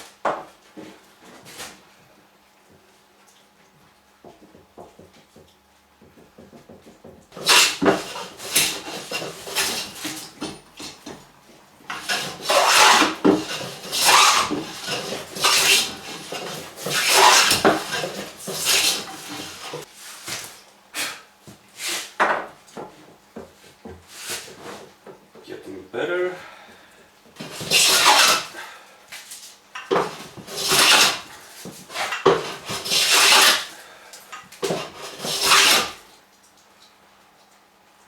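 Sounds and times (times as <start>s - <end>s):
hand plane cutting wood: 7.4s - 11.0s, 11.9s - 19.9s, 27.4s - 28.6s, 29.9s - 33.8s, 34.6s - 36.0s.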